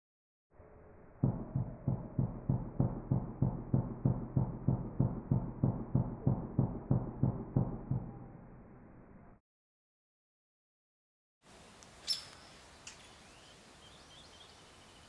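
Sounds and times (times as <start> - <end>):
slowed woodpecker drumming knocks: 1.2 - 8.4.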